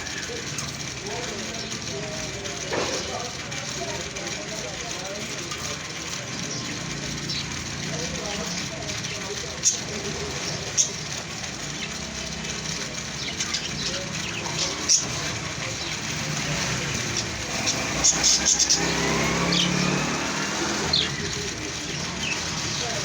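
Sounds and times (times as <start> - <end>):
traffic background: 0.0 - 23.0
vehicle engine revving: 11.6 - 23.0.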